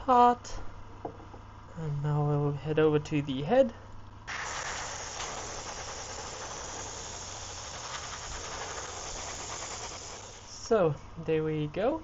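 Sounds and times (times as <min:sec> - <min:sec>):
airbrush spraying hiss: 0:04.3 - 0:10.7.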